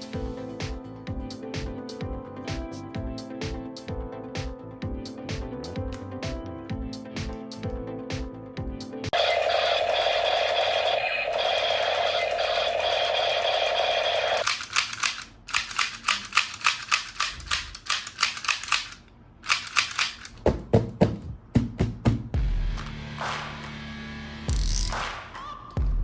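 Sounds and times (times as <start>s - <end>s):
electronic toy buzz: 9.2s - 14.6s
rapid sharp clicks: 9.2s - 20.4s.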